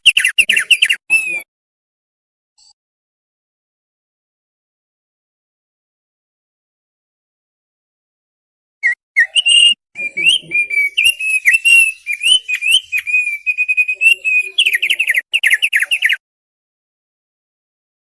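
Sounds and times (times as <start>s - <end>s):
songbird whistling and trilling: 0.0s - 1.4s, 8.8s - 16.2s.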